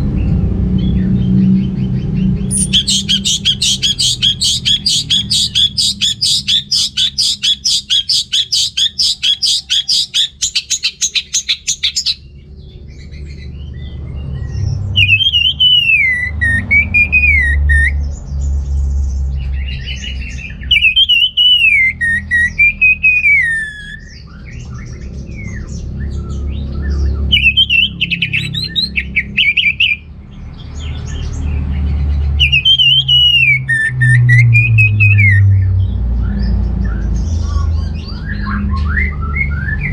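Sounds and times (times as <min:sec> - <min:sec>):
thrush singing: 0:02.4 - 0:12.3, 0:15.0 - 0:17.9, 0:27.3 - 0:30.0.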